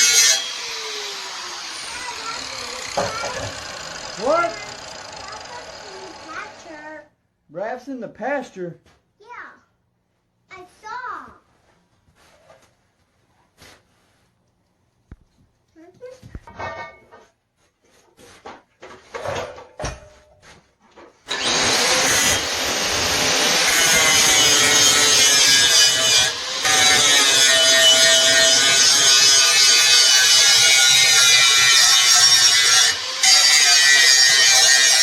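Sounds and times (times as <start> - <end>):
angle grinder grinding metal: 0.0 - 6.9, 21.3 - 35.0.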